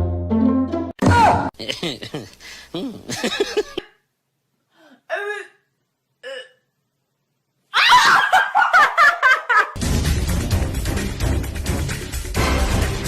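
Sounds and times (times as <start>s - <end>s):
person vocalizing: 1.0s - 3.8s
person laughing in high bursts: 1.6s - 3.9s, 7.8s - 9.8s.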